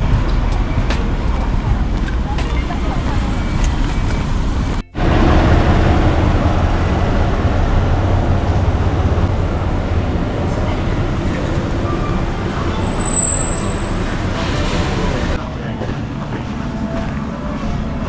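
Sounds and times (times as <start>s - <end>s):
short high whine: 12.5s - 15.3s.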